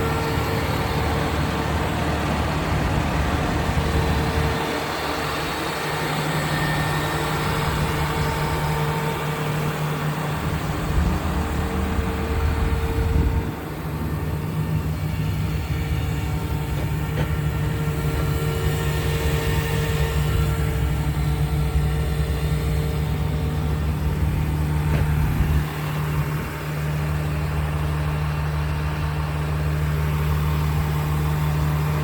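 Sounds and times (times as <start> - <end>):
truck diesel engine running: 0.0 - 32.0.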